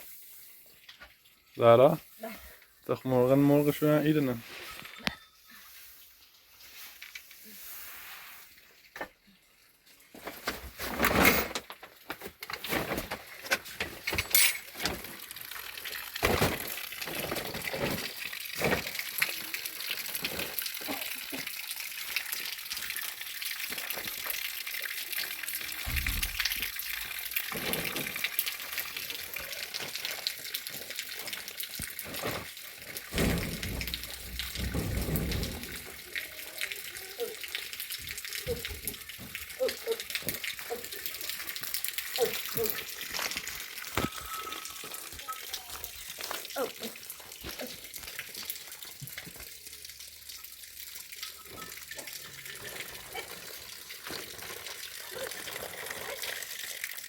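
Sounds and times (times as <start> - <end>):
water running and splashing: 0.0 - 4.8, 5.7 - 57.0
knocks and clatter of handling: 10.2 - 15.2, 16.2 - 19.0, 31.8 - 36.0.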